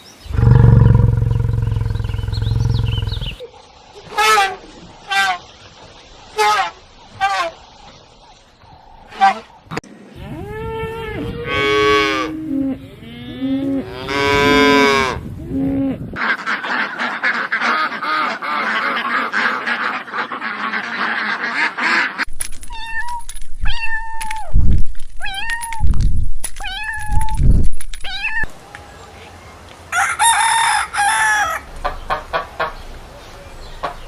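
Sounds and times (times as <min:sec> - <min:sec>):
drawn-out farm animal calls: 0:00.3 - 0:03.4, 0:04.1 - 0:22.3
short animal calls: 0:00.3 - 0:03.4
chorus of animal calls: 0:00.3 - 0:03.5.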